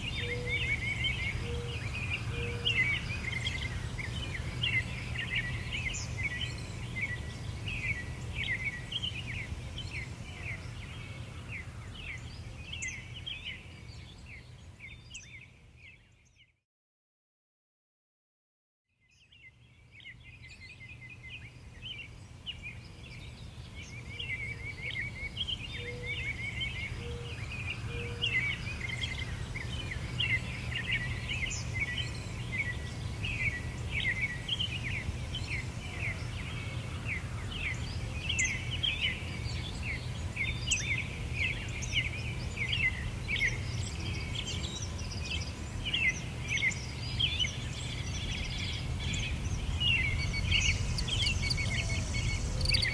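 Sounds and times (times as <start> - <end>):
small birds chirping: 19.4 - 52.9
steady low rumble: 48.4 - 52.9.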